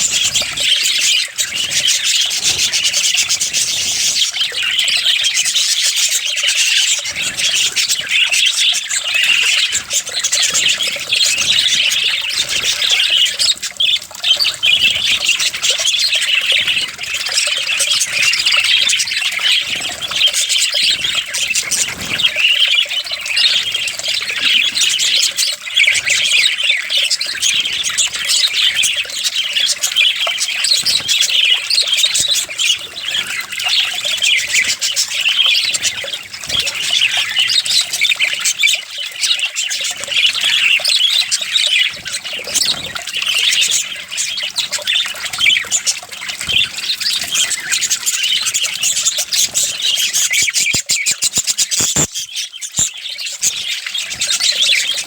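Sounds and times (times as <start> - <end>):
parrots chattering and squawking: 0.0 - 55.0.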